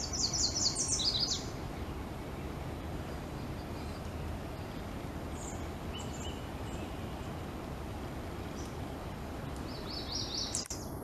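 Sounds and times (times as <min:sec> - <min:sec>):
bird chirps: 0:00.0 - 0:07.5, 0:08.4 - 0:11.0
background noise: 0:00.0 - 0:11.0.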